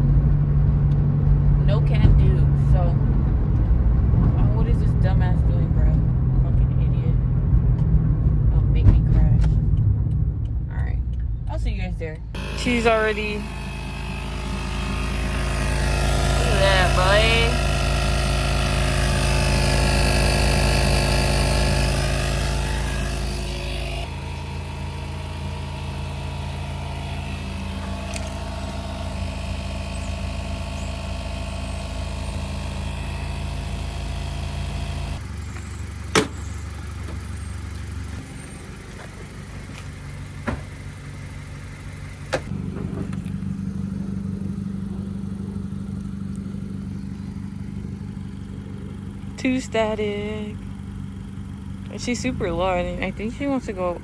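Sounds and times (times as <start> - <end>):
car engine running: 0.0 - 54.0
road noise: 0.0 - 54.0
sharp clicks: 27.4 - 28.9.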